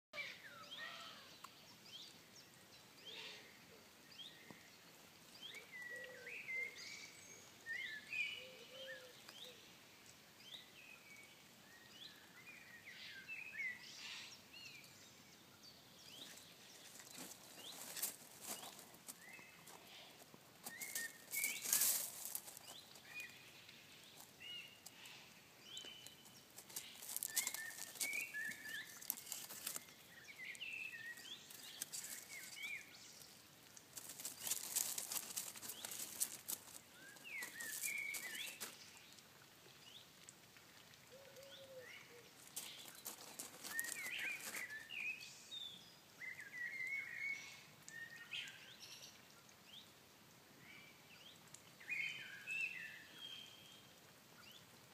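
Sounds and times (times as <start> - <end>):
small birds chirping: 0.2 - 40.1, 41.1 - 50.0
rustling splashy noise: 20.4 - 23.5, 26.1 - 32.9, 33.6 - 39.0, 42.3 - 45.0.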